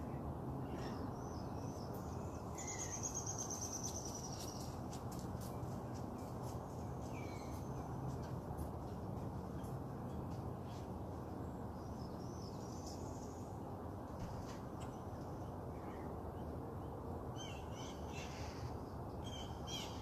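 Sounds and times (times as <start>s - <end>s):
birds calling and chirping: 0.0s - 4.8s, 17.4s - 20.0s
steady low background noise: 0.0s - 20.0s.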